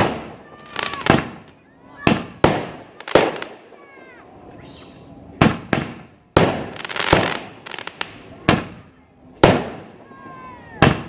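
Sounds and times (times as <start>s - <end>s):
firework pops: 0.0s - 3.6s, 5.4s - 9.9s, 10.8s - 11.0s
firework bangs: 0.0s - 4.0s, 5.4s - 11.0s
firework crackling: 0.0s - 11.0s.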